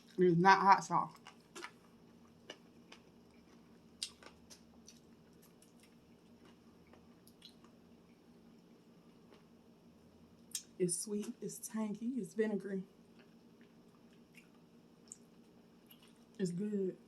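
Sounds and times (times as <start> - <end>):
chewing food: 0.8 - 9.5, 13.1 - 16.4.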